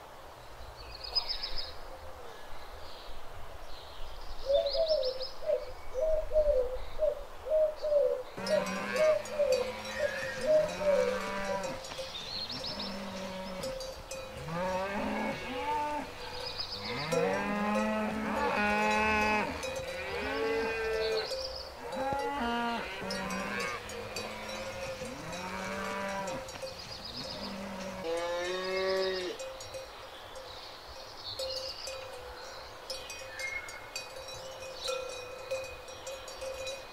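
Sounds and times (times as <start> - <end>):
cows mooing: 8.4 - 29.4.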